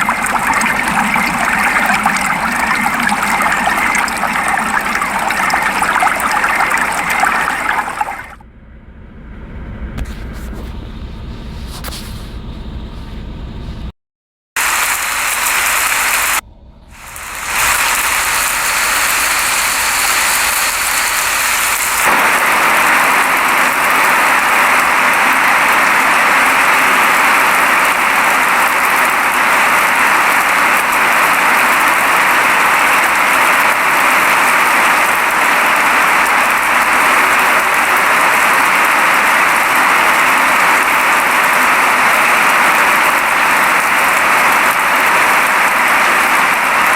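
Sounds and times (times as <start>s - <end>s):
low rumble: 8.4s - 13.9s, 16.4s - 20.0s
steady rain hiss: 14.6s - 16.4s, 17.0s - 46.9s.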